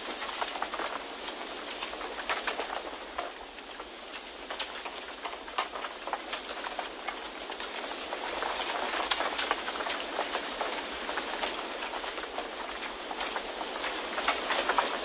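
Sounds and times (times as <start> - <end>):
rain drops tapping: 0.0 - 15.0.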